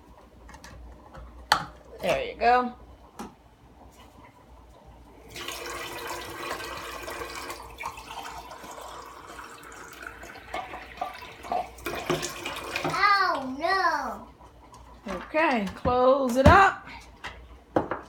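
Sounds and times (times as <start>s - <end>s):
running water: 5.2s - 14.2s.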